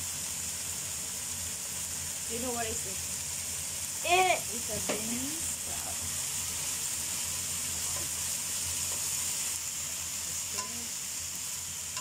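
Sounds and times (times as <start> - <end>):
vegetables sizzling in oil: 0.0 - 12.0
spatula stirring in wok: 4.8 - 12.0.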